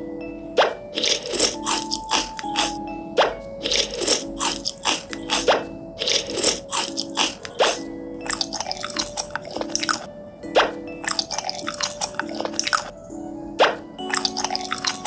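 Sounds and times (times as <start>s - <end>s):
light background music: 0.0s - 15.0s
crunchy biting and chewing: 1.0s - 2.8s, 3.6s - 10.1s, 11.0s - 12.9s.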